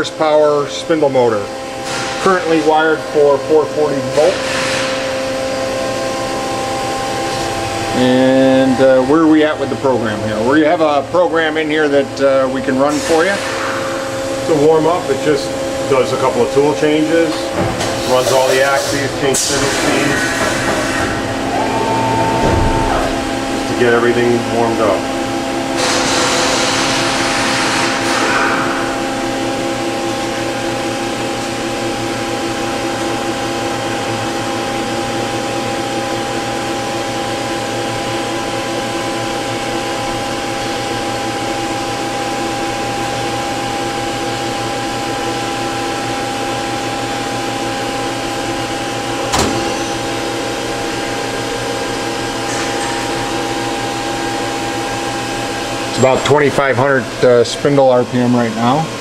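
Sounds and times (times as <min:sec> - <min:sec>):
machine spindle whine: 0:13.1 - 0:59.0.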